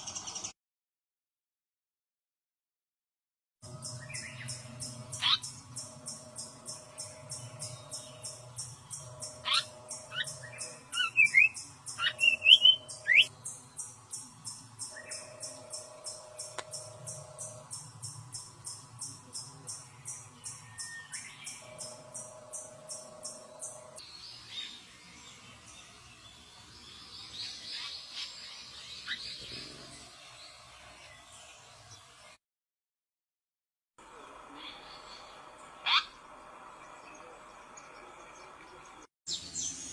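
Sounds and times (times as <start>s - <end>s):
faint outdoor background noise: 0.0s - 0.5s, 3.6s - 32.4s, 34.0s - 39.9s
insect chirring: 3.8s - 24.0s
bird whistles and chattering: 9.4s - 13.3s.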